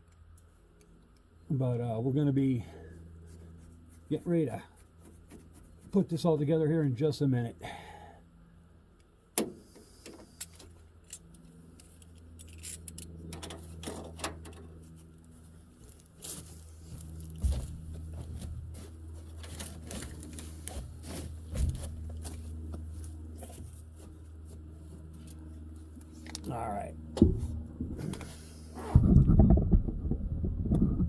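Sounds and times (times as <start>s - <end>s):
steady low hum: 0.0s - 31.0s
rubber hose scraping and rustling: 14.8s - 24.6s.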